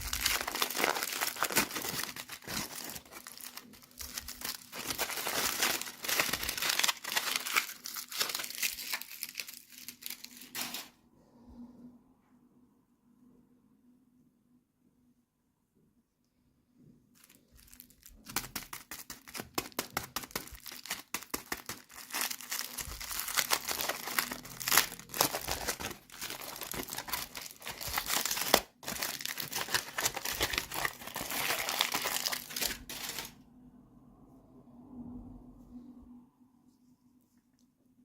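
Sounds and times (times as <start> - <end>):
crinkly packaging crackling: 0.0 - 10.9, 17.1 - 33.4.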